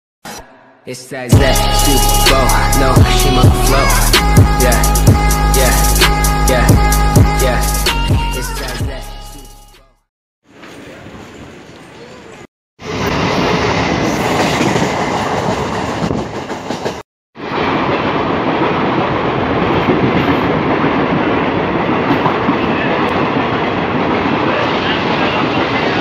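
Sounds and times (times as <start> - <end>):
passenger train rolling past: 10.6 - 26.0.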